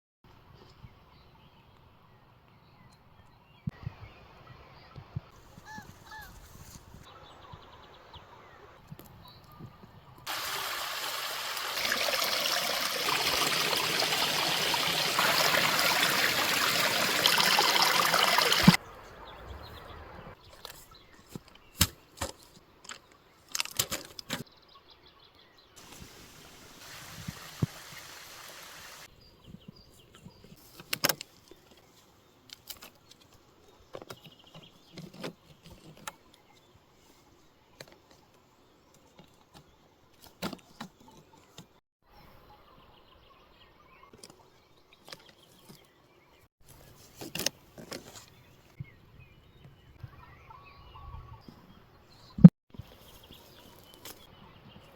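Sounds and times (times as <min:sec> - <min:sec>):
water rushing: 0:10.3 - 0:18.8, 0:25.8 - 0:29.1.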